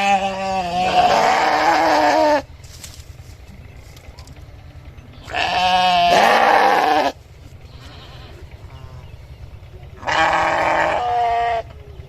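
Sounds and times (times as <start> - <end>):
sheep bleating: 0.0 - 2.5, 5.2 - 9.2, 10.0 - 11.7.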